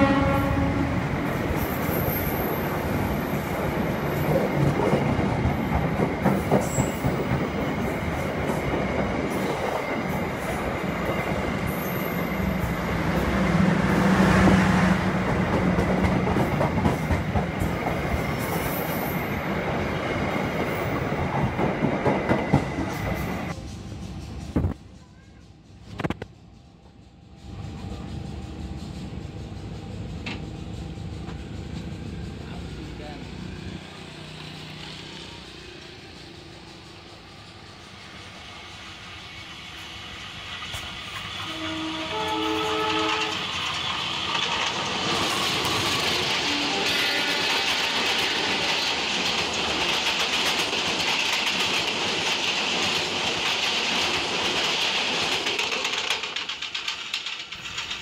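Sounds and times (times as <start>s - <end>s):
train rumbling on track: 0.0s - 58.0s
wheels clattering over track: 42.8s - 58.0s.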